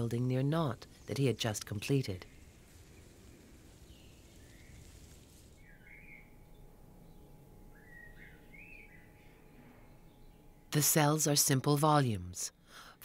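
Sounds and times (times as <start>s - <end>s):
low background noise: 0.0s - 13.0s
bird chirps: 0.6s - 10.6s.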